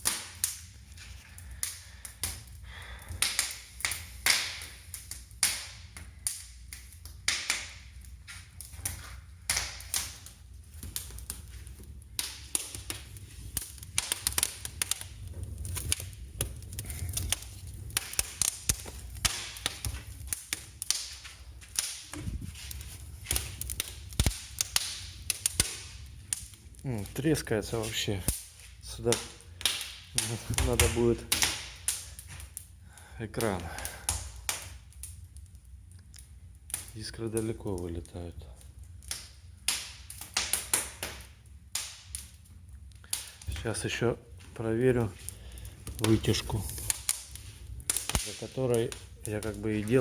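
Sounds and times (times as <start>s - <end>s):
wood fire crackling and popping: 0.0s - 50.0s
low steady rumble: 6.1s - 28.9s.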